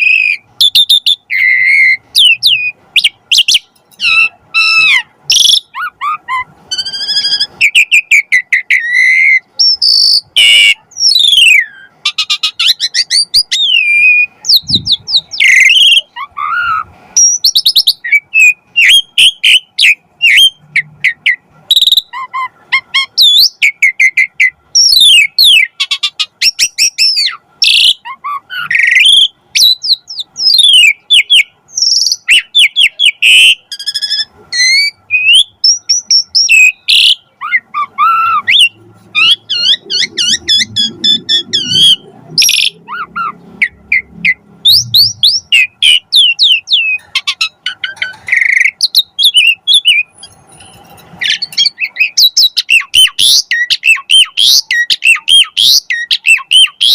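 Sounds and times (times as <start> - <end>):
starling singing: 0.0 - 56.9.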